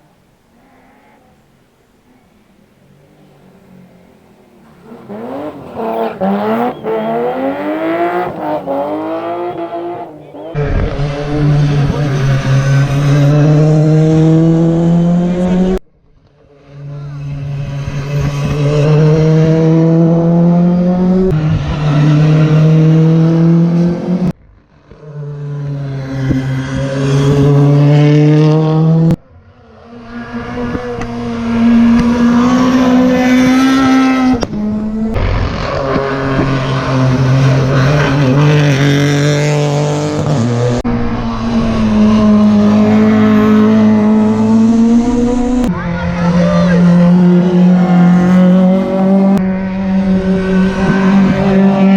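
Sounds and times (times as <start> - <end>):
rally car engines revving: 0.0 - 51.9.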